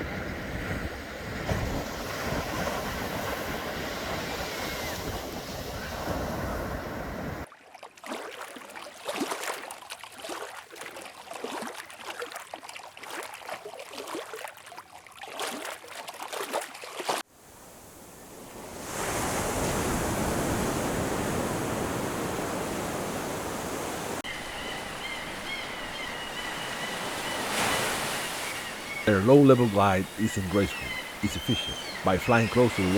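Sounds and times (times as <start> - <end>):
ocean surf splashing: 0.0 - 7.5, 17.4 - 32.9.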